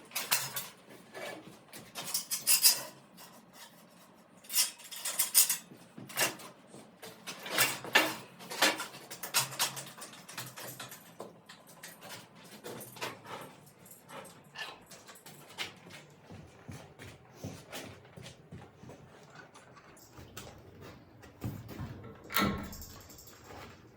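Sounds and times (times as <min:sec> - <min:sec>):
metal clicks and knocks: 0:21.3 - 0:23.8.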